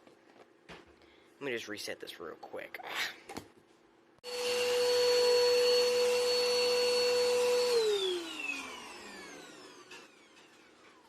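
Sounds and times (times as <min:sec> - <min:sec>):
vacuum cleaner whining: 0:04.2 - 0:11.0
vacuum motor spinning down: 0:04.2 - 0:11.0.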